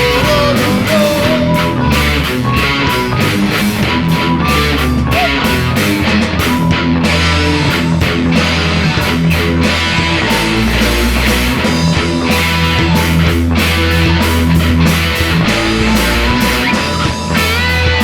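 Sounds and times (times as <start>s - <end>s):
bass guitar: 0.0s - 18.0s
distorted electric guitar: 0.0s - 18.0s
drums: 0.0s - 18.0s.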